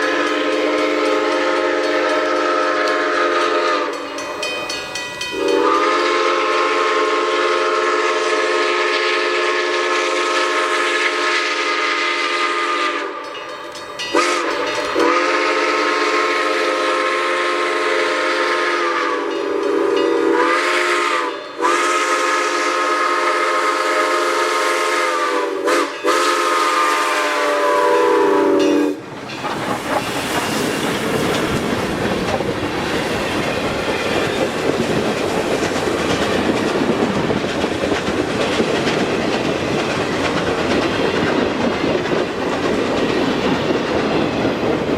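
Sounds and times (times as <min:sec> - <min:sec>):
steam whistle blasts: 0:00.0 - 0:04.4, 0:05.3 - 0:13.3, 0:14.1 - 0:29.0
train wheels rumbling on rails: 0:00.0 - 0:44.9.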